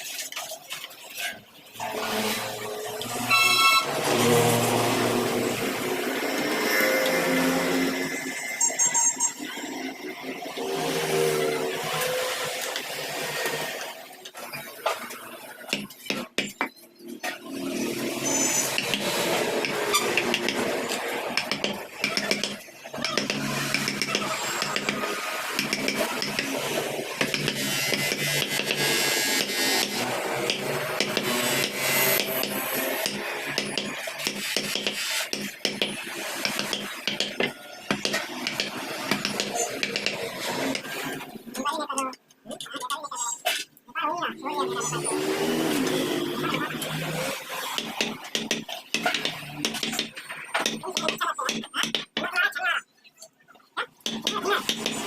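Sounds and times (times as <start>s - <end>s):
carving tools tapping wood: 15.7s - 16.7s, 18.7s - 20.7s, 21.3s - 40.9s, 47.6s - 52.3s, 54.0s - 55.0s
clicks and scrapes on wood: 18.6s - 41.2s, 45.7s - 52.3s, 54.0s - 55.0s.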